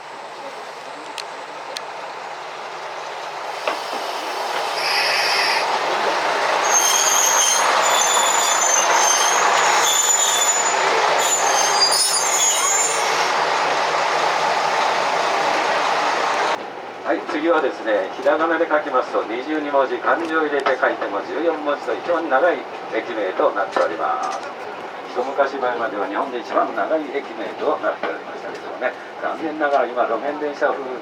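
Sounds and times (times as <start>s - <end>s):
diesel railcar running: 0.0s - 31.0s
high-pitched wheel squeal: 4.7s - 5.7s, 6.6s - 13.4s.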